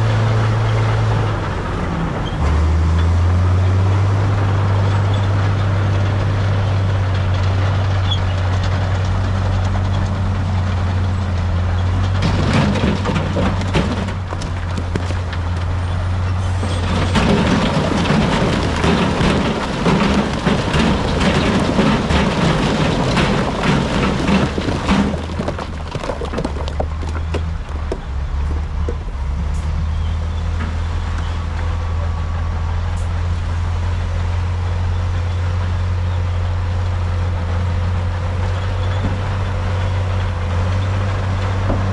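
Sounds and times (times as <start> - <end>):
diesel engine droning: 0.0 - 41.9
rock clattering and grinding: 8.4 - 29.2.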